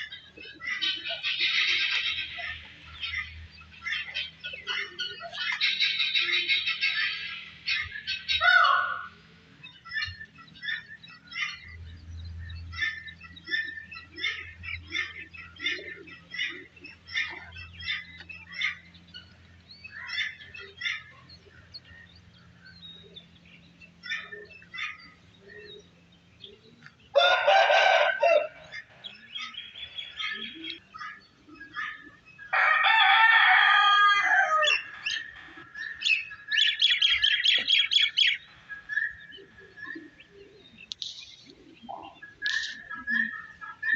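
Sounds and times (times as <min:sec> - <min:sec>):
small birds chirping: 0:00.0 - 0:33.2, 0:34.2 - 0:43.9
rooster crowing: 0:27.1 - 0:28.7, 0:32.5 - 0:35.0.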